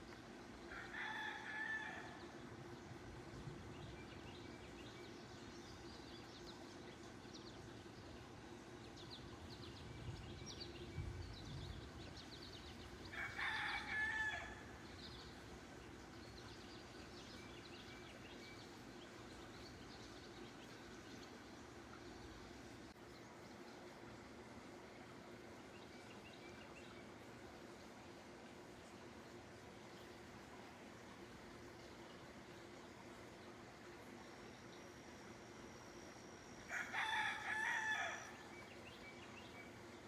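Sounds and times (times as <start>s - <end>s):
rooster crowing: 0.7s - 2.2s, 13.1s - 14.7s, 36.7s - 38.4s.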